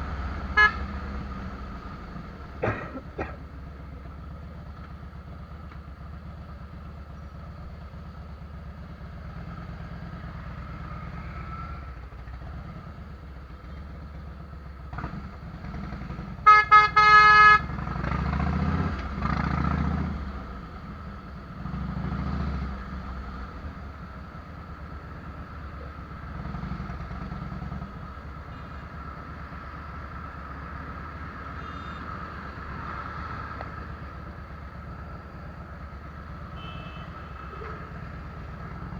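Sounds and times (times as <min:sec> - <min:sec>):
motorcycle engine rumbling: 0:00.0 - 0:38.9
horn blasts: 0:00.5 - 0:01.3, 0:16.4 - 0:17.7, 0:36.5 - 0:38.1.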